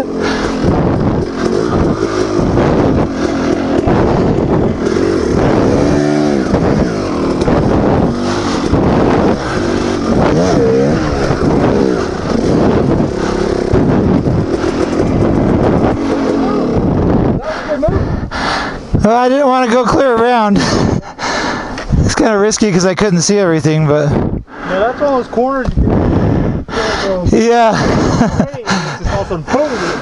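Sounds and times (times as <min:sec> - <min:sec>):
dirt bike engine revving: 0:00.0 - 0:17.4.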